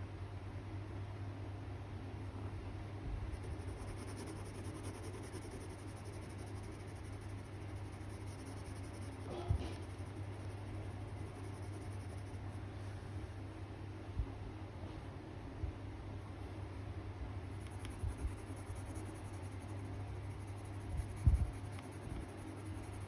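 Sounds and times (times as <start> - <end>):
steady low hum: 0.0 - 23.0
pencil scratching on paper: 3.4 - 12.6, 17.6 - 23.0.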